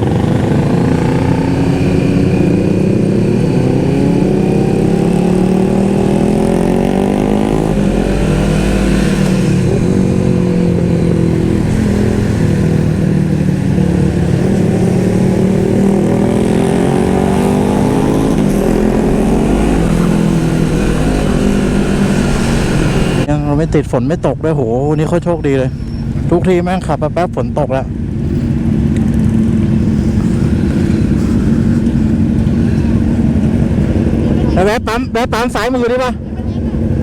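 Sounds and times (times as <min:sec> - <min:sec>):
wind rushing: 0:00.0 - 0:24.9
motorcycle engine running: 0:00.0 - 0:37.0.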